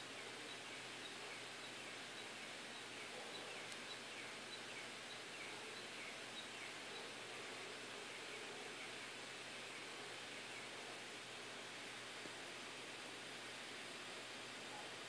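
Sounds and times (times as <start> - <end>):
small bird chirping softly: 0.0 - 11.5
faint background hiss: 0.0 - 15.0.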